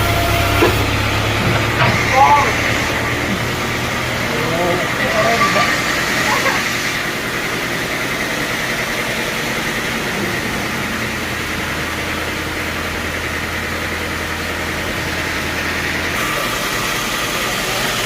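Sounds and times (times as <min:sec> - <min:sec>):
high machine whine: 0:00.0 - 0:18.0
sawmill machinery humming: 0:00.0 - 0:18.0.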